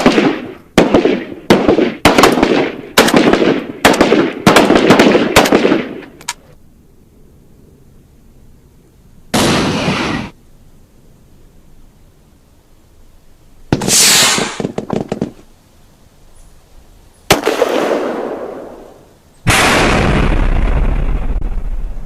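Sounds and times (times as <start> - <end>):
gunshots: 0.0 - 6.2, 9.4 - 10.3, 13.7 - 15.4, 17.3 - 21.6
deep low rumble: 20.1 - 22.0.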